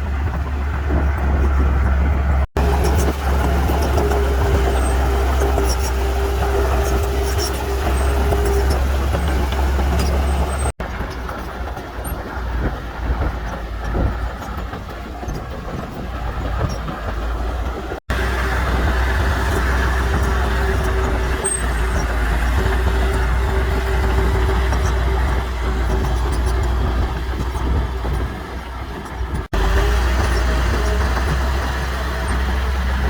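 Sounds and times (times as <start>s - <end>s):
diesel machinery rumble: 0.0s - 33.0s.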